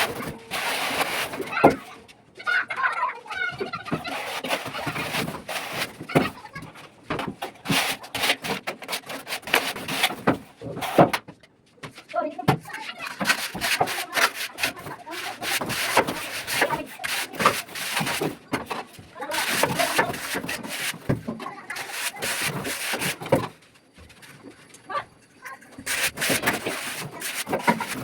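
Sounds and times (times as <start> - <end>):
hand tool scraping wet plaster: 0.0 - 1.9, 3.5 - 6.6, 7.4 - 11.1, 12.7 - 23.5, 25.8 - 28.0.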